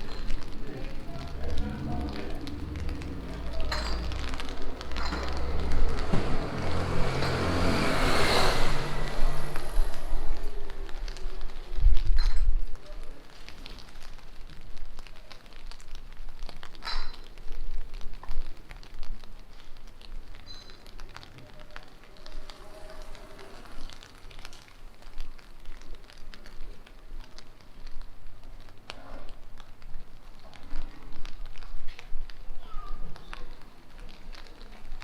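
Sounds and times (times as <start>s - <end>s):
rain pattering: 0.0s - 35.0s.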